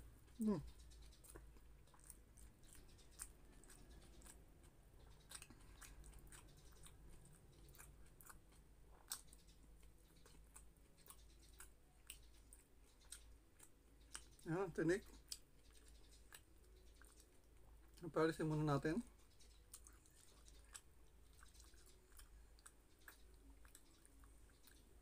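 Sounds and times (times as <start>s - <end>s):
chewing soft food: 0.0s - 25.0s
mouth clicks and lip smacks: 1.0s - 4.4s.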